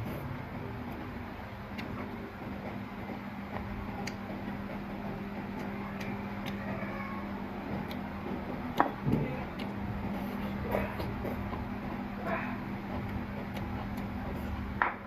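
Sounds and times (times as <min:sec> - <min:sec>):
steady low hum: 0:00.0 - 0:15.0
light eating clicks: 0:03.5 - 0:04.8, 0:07.7 - 0:09.8.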